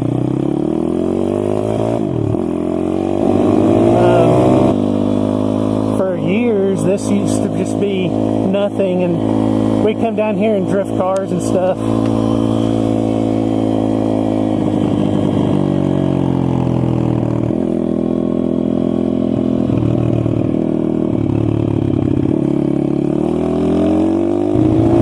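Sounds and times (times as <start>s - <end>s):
motorbike engine revving: 0.0s - 25.0s.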